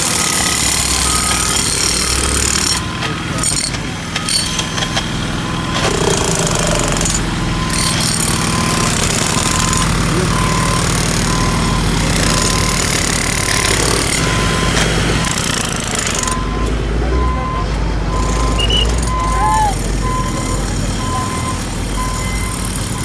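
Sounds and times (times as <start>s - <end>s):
jackhammer hammering: 0.0s - 23.0s
short reversing beeps: 0.0s - 23.0s
steady engine drone: 0.0s - 23.0s.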